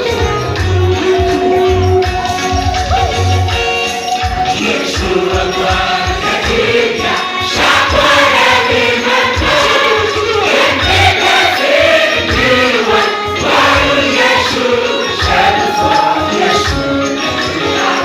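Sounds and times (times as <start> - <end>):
steady drum beat: 0.0 - 18.0
choir singing a worship song: 4.2 - 18.0.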